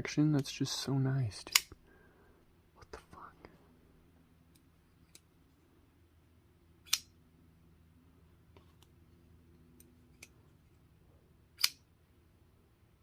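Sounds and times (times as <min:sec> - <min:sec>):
folding knife metallic click: 0:06.8 - 0:07.1, 0:11.6 - 0:11.9.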